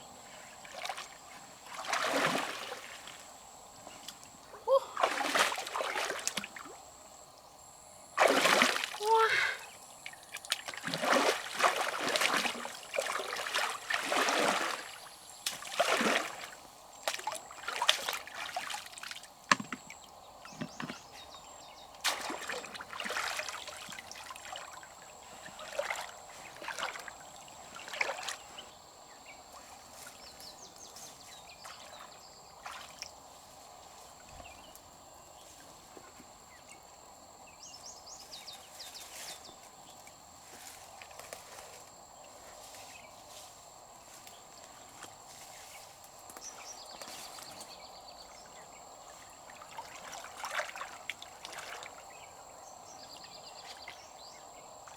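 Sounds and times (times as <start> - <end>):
river water sloshing and splashing: 0.2 - 3.4, 4.0 - 6.8, 8.2 - 21.2, 22.0 - 28.8, 29.5 - 34.5, 48.4 - 54.9.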